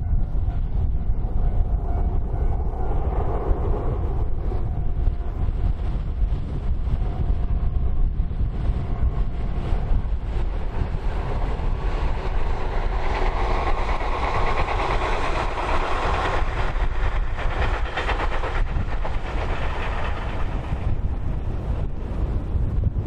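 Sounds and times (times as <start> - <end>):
electric train passing: 0.0 - 23.0
wind buffeting microphone: 0.0 - 23.0
wheels clacking over rail joints: 10.5 - 21.1.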